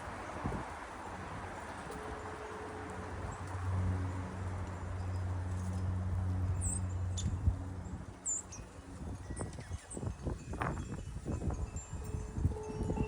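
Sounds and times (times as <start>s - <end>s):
low motor hum: 1.6s - 9.6s.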